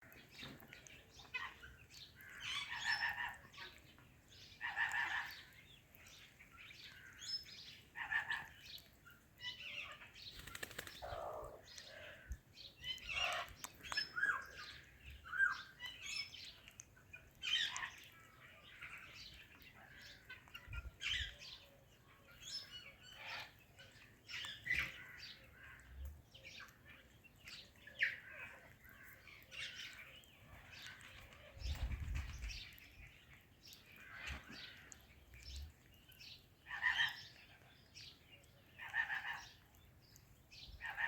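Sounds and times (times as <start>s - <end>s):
parakeets squawking and chirping: 8.0s - 8.5s, 23.1s - 23.5s, 36.7s - 37.3s.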